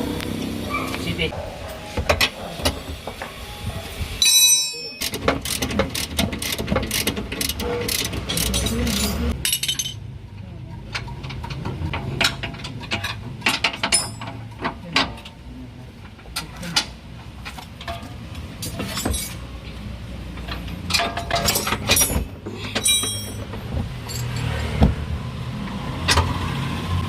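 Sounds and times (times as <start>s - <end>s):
hand tools clinking on metal: 4.2s - 10.0s, 10.8s - 15.4s, 16.3s - 24.7s.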